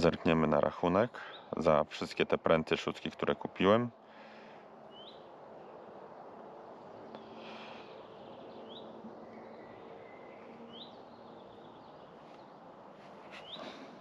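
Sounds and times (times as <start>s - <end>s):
small bird chirping: 6.8s - 13.7s.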